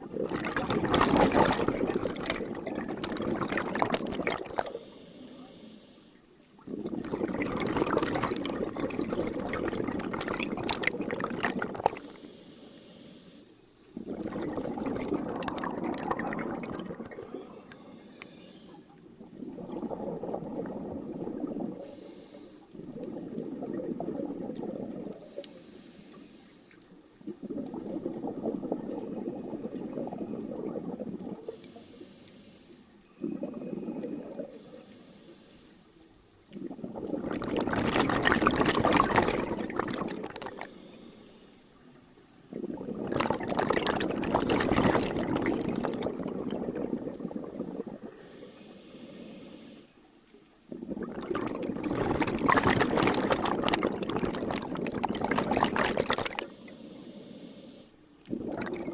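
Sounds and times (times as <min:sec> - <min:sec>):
exhaust bubbling underwater: 0:00.0 - 0:04.8, 0:06.6 - 0:12.1, 0:14.0 - 0:17.5, 0:19.0 - 0:22.0, 0:22.7 - 0:25.3, 0:27.1 - 0:31.6, 0:33.2 - 0:34.6, 0:36.4 - 0:40.7, 0:42.5 - 0:48.3, 0:50.6 - 0:56.5, 0:58.2 - 0:58.9
regulator inhale hiss: 0:04.5 - 0:06.3, 0:11.9 - 0:13.7, 0:17.1 - 0:19.0, 0:21.8 - 0:22.8, 0:25.1 - 0:27.0, 0:31.4 - 0:36.1, 0:40.4 - 0:42.0, 0:48.0 - 0:50.4, 0:56.3 - 0:58.2.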